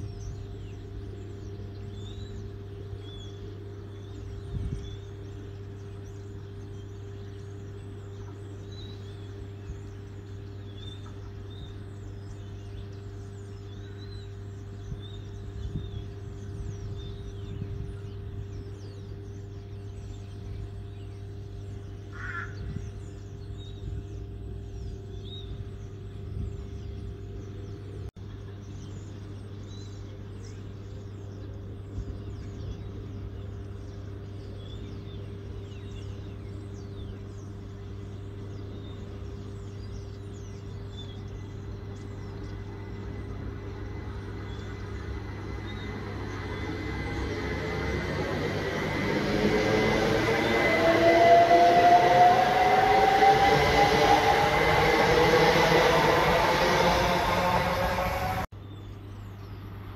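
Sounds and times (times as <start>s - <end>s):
small birds chirping: 0.0s - 50.8s
steady low hum: 0.0s - 59.9s
electric train approaching: 35.4s - 58.5s.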